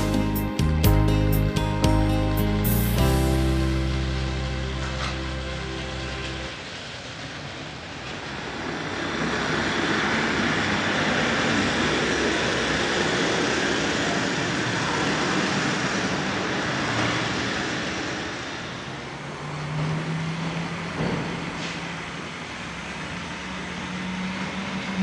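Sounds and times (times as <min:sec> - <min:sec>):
low steady hum: 0:00.0 - 0:07.2
model train whirring on track: 0:03.1 - 0:25.0.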